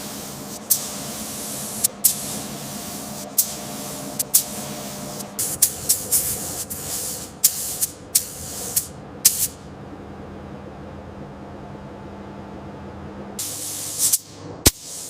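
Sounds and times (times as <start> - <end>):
air tool hissing bursts: 0.0 - 9.6, 13.4 - 15.0
low steady hum: 0.0 - 14.7.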